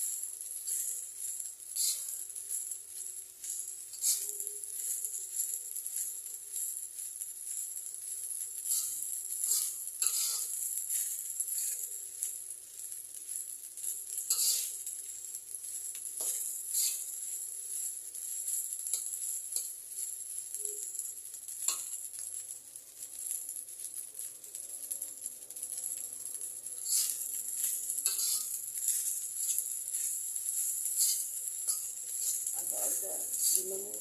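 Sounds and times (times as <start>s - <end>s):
rice sizzling in a hot pan: 0.0s - 34.0s
utensil scraping a pan: 1.8s - 2.2s, 3.4s - 6.1s, 8.6s - 11.9s, 14.2s - 14.9s, 16.2s - 17.9s, 26.8s - 34.0s.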